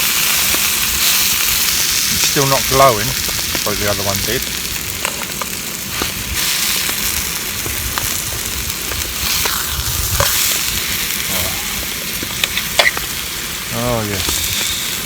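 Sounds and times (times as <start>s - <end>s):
steak sizzling in a frying pan: 0.0s - 15.0s
sharp fat pops: 11.2s - 13.2s.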